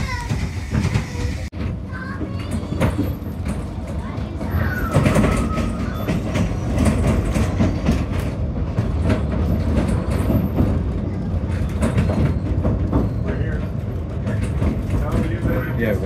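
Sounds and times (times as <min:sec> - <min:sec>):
train wheels rumbling: 0:00.0 - 0:16.0.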